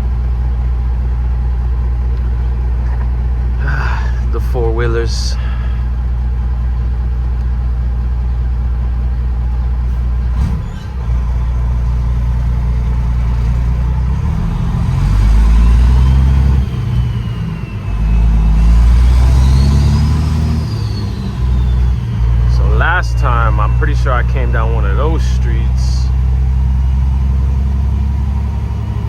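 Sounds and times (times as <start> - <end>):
diesel truck engine running: 0.0 - 29.0
turbo whistle: 15.3 - 25.8.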